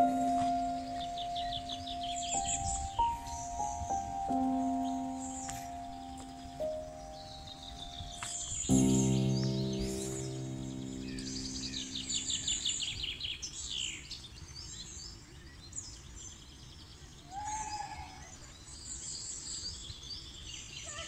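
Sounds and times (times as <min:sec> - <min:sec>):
low droning tone: 0:00.0 - 0:13.0
birds chirping and trilling: 0:00.0 - 0:16.4.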